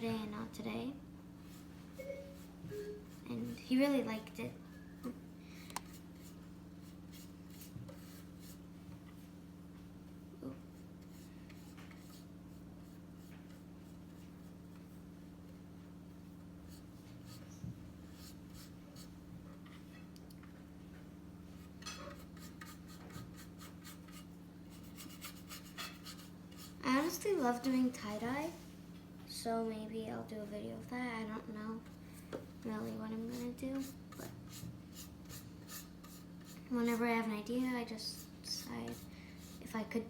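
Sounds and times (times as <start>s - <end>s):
steady low hum: 0.0s - 40.0s
paintbrush scratching on wood: 5.9s - 8.6s, 11.1s - 15.0s, 21.6s - 26.8s, 32.8s - 37.0s, 38.0s - 39.8s.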